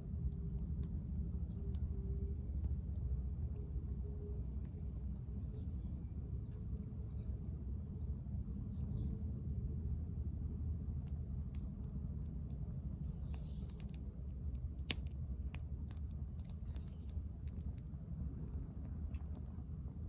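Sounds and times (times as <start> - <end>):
steady low rumble: 0.0 - 20.0
wood fire crackling: 0.0 - 20.0
faint bird chirps: 1.4 - 9.6.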